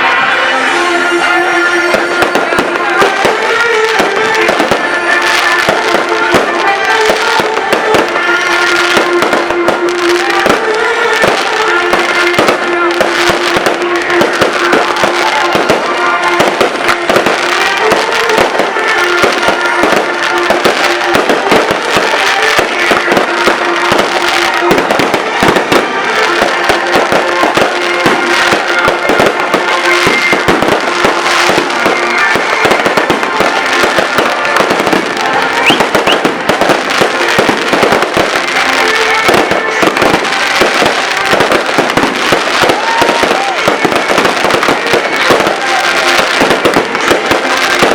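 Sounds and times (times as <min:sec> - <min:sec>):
fireworks crackling and popping: 0:00.0 - 0:47.9
music with held notes: 0:00.0 - 0:47.9.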